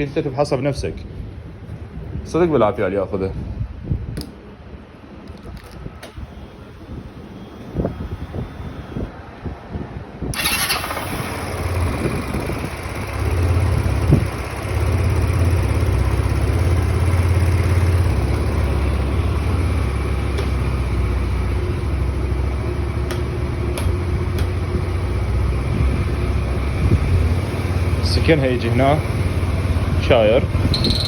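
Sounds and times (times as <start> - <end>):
motorcycle engine idling: 10.4 - 31.0.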